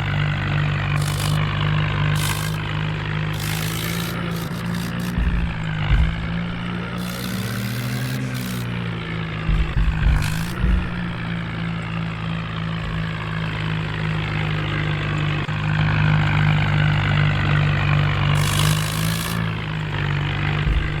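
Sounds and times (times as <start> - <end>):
heavy diesel engine running: 0.0 - 21.0
low thumps: 3.9 - 11.5.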